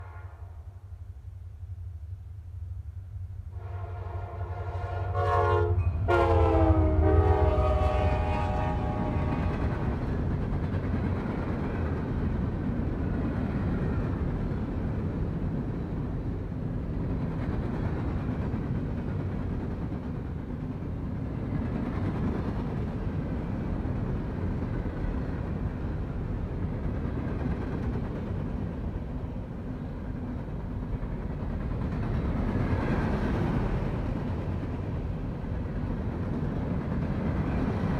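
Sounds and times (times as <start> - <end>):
locomotive horn: 0.0 - 0.7, 3.5 - 9.8
diesel locomotive engine rumble: 0.0 - 37.9.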